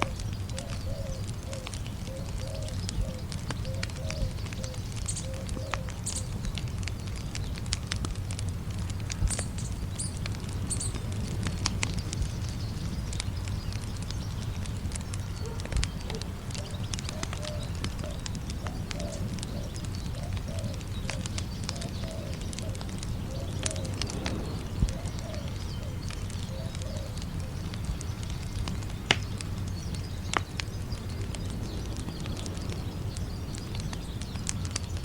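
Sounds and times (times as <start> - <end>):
campfire crackling and popping: 0.0 - 35.0
short low bird calls: 15.3 - 34.4.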